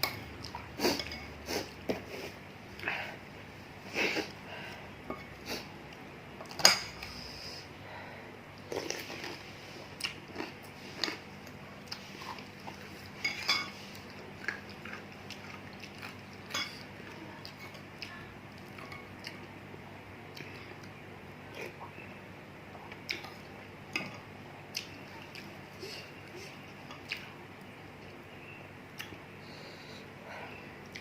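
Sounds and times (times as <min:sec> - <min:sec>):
cutlery clinking against bowl: 0:00.0 - 0:01.4, 0:13.2 - 0:13.8, 0:16.5 - 0:16.8.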